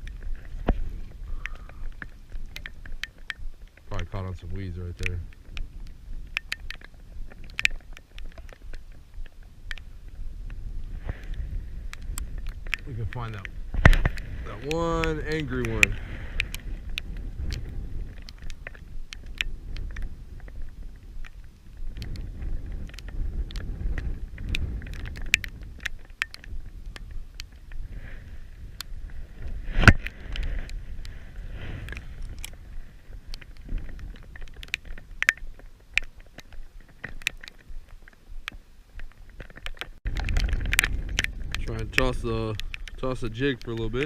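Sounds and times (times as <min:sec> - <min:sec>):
raindrops ticking: 0:00.0 - 0:44.0.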